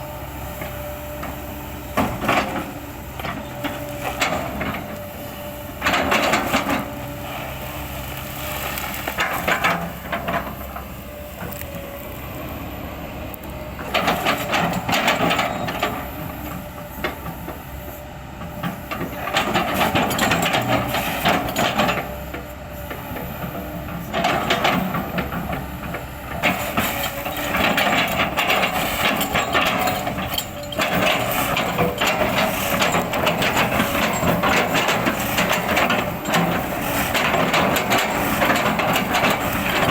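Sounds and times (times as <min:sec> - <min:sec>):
excavator running: 0:00.0 - 0:39.9.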